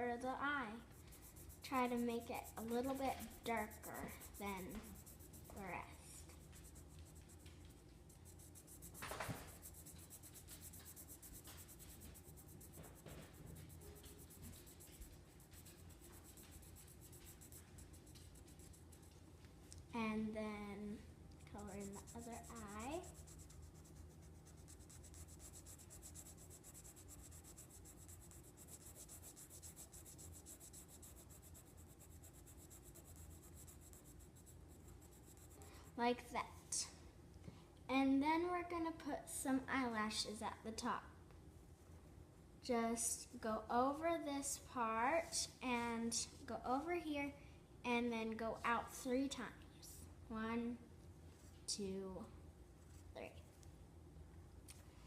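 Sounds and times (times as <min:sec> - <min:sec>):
pencil scratching on paper: 0:00.8 - 0:19.2, 0:21.5 - 0:36.0.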